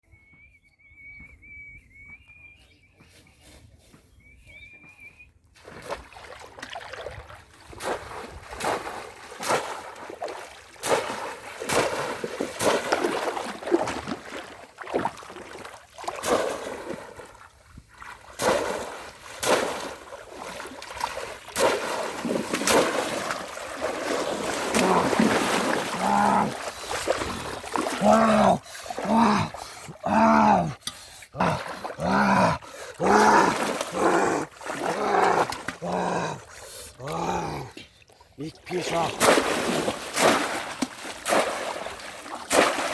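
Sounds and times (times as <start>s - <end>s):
water splashing: 5.6s - 42.9s.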